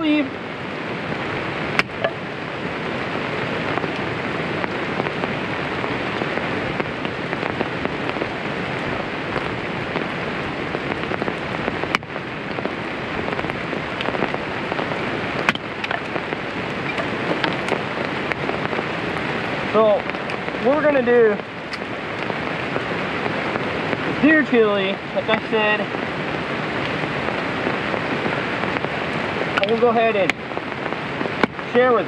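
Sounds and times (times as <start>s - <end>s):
rain on an umbrella: 0.0s - 32.0s.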